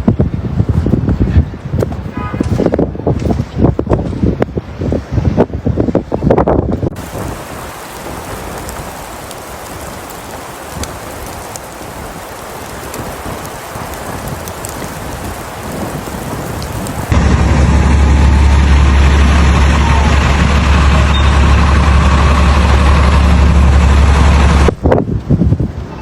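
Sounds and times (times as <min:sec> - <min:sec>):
loud wind rumble on microphone: 0:00.0 - 0:26.0
wind-blown snow hissing: 0:04.8 - 0:19.6.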